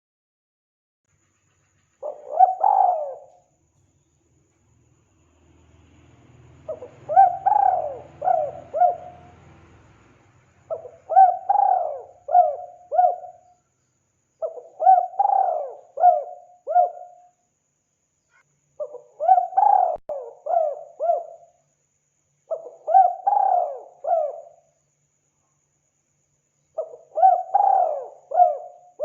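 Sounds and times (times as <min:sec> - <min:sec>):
dove cooing: 0:02.0 - 0:03.5, 0:06.7 - 0:09.4, 0:10.7 - 0:13.5, 0:14.4 - 0:17.2, 0:18.8 - 0:21.5, 0:22.5 - 0:24.6, 0:26.8 - 0:29.0.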